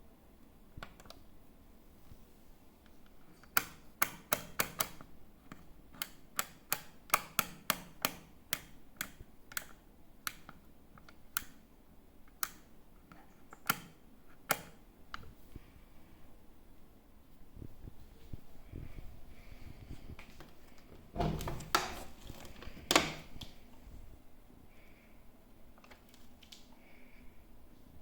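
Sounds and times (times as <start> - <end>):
washing machine panel clicks: 21.2 - 23.5.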